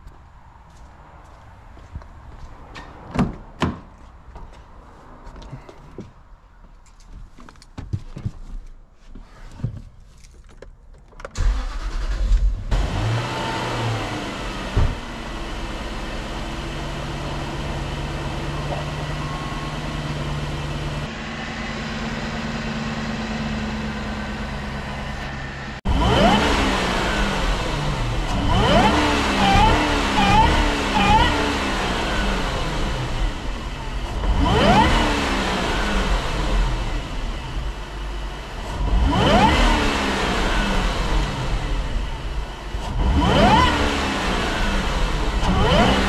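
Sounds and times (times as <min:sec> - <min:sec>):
car engine idling: 0:11.4 - 0:46.0
car engine revving: 0:11.4 - 0:46.0.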